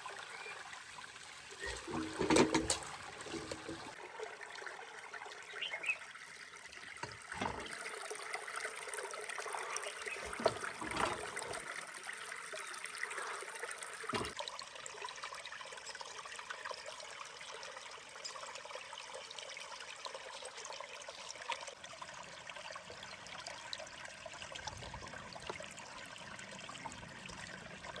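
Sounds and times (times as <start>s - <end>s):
water running: 0.0s - 17.3s.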